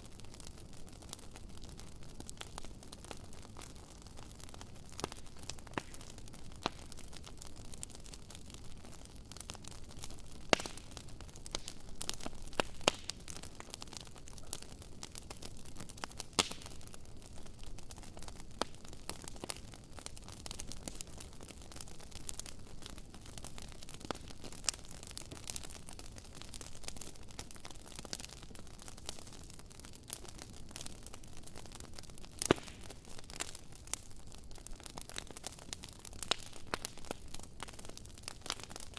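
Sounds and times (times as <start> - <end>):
campfire crackling and popping: 0.0 - 38.9.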